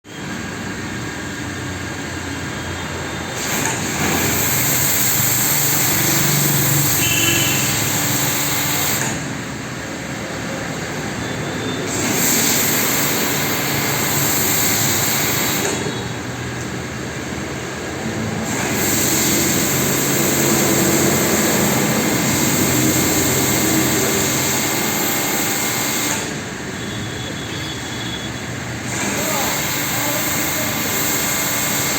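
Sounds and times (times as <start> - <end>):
car wash motor running: 0.1 - 31.9
hissing water spray: 3.4 - 9.2, 11.9 - 15.9, 18.3 - 26.4, 28.8 - 31.9.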